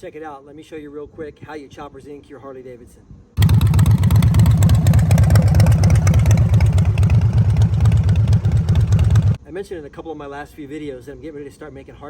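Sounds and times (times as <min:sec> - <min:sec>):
motorcycle engine pulsing exhaust: 0:03.4 - 0:09.4.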